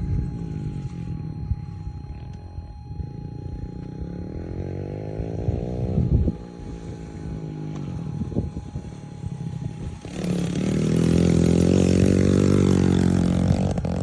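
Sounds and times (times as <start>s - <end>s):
small vehicle engine revving: 9.2s - 14.0s.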